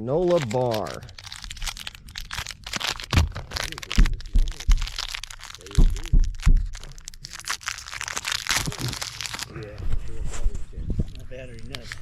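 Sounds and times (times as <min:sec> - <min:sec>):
crinkling: 0:00.0 - 0:12.0
objects being rummaged through: 0:00.2 - 0:09.5
sharp cracks: 0:00.2 - 0:09.5
low knocks: 0:03.2 - 0:06.8.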